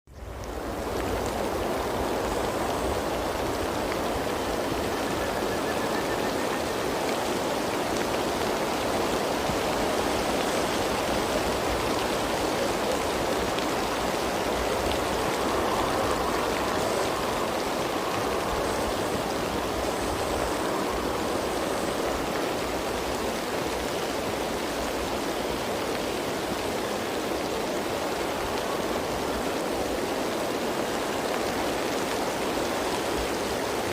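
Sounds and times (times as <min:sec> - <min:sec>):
rain pattering: 0:00.1 - 0:33.9.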